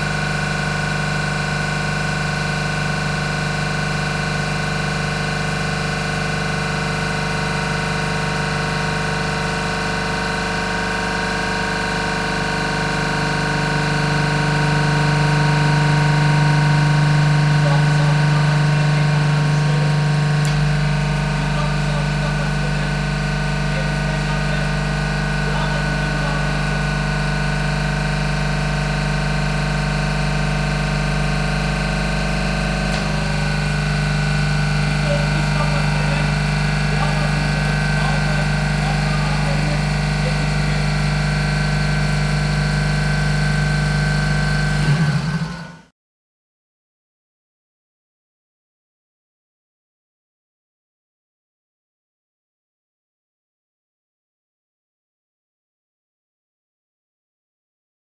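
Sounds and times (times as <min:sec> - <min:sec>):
compressor mechanical hum: 0:00.0 - 0:45.8
short click: 0:32.9 - 0:33.2.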